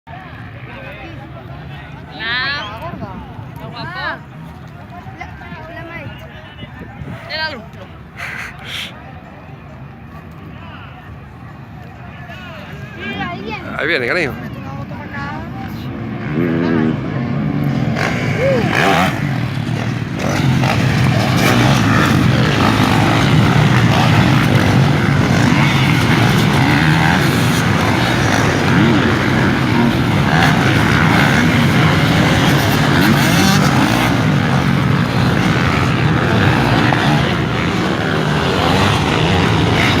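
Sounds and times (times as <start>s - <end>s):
motocross engines revving: 7.0s - 8.9s, 15.3s - 40.0s.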